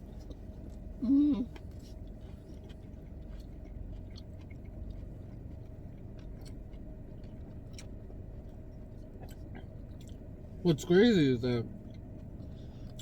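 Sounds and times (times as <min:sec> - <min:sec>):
person chewing: 0:00.1 - 0:10.3.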